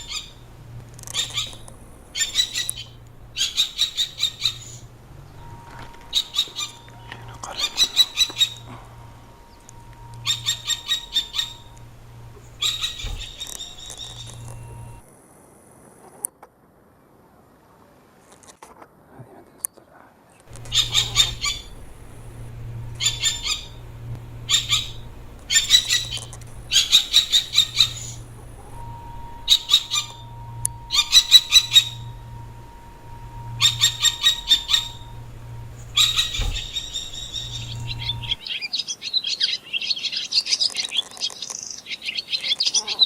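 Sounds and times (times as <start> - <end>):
bird calling rapid high notes: 0.0 - 15.0, 20.5 - 38.4
steady low hum: 0.0 - 15.0, 20.5 - 38.4.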